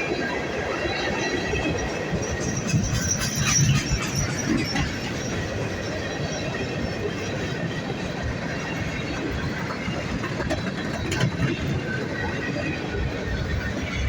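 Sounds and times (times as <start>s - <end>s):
train wheels rumbling: 0.0s - 14.0s.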